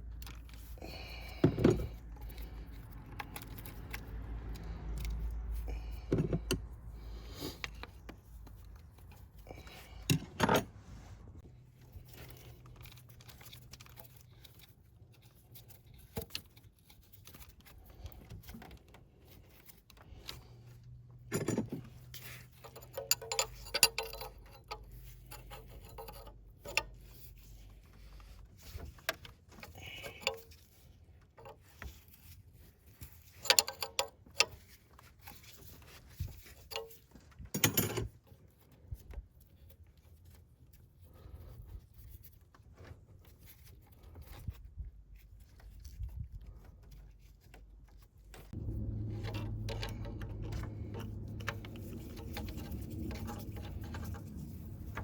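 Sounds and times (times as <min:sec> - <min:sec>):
metal tools clinking and rattling: 0:21.2 - 0:27.2, 0:33.2 - 0:34.8, 0:36.4 - 0:38.3, 0:48.6 - 0:55.0.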